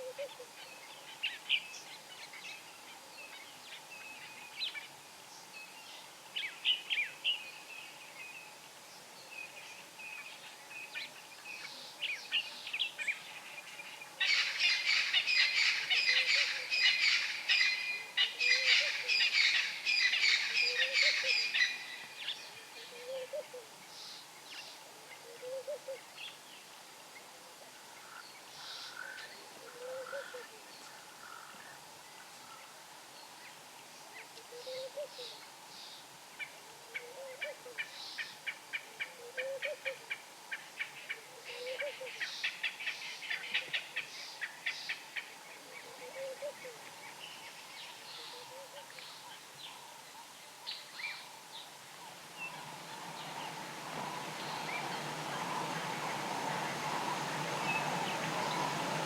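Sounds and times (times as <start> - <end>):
soft low bird hoot: 0.0 - 0.5, 22.8 - 23.7, 25.2 - 26.0, 29.6 - 30.6, 34.4 - 35.4, 41.1 - 42.2, 45.6 - 46.9.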